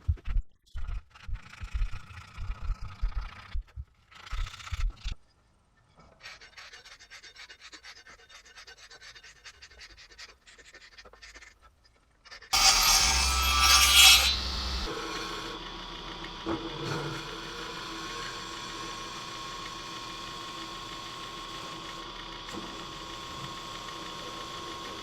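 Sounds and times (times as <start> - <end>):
tool scraping a workpiece: 12.6 - 15.6.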